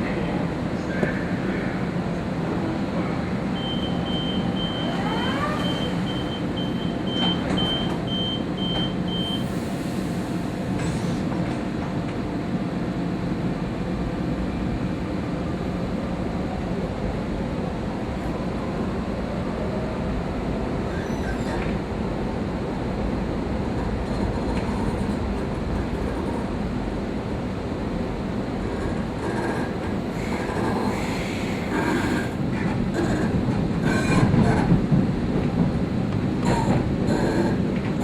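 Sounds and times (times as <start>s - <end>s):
train rumble: 0.0s - 38.0s
door-closing warning beeps: 3.6s - 9.5s.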